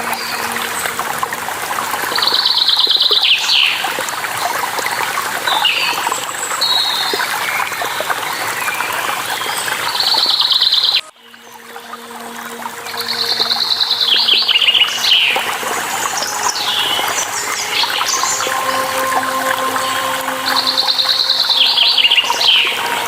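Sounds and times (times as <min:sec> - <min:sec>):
waterfall rushing: 0:00.0 - 0:04.5, 0:11.3 - 0:23.0.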